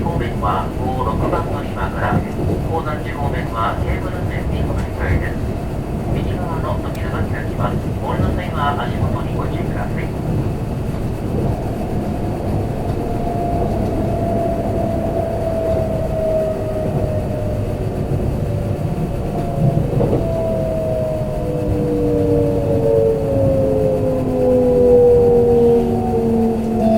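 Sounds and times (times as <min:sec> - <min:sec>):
train wheel and track rumble: 0:00.0 - 0:26.9
train motor whine: 0:10.4 - 0:26.9.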